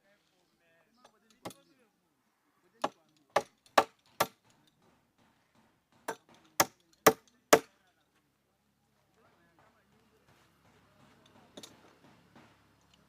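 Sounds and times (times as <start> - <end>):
sharp blows on wood: 2.8 - 4.4.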